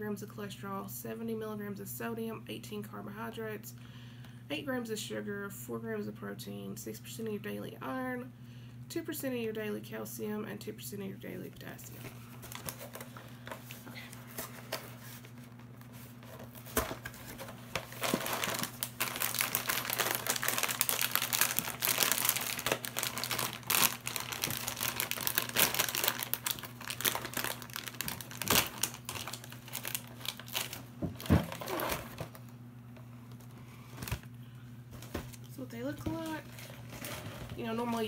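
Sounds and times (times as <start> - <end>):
packaging crinkling: 12.4 - 32.6, 36.1 - 38.0.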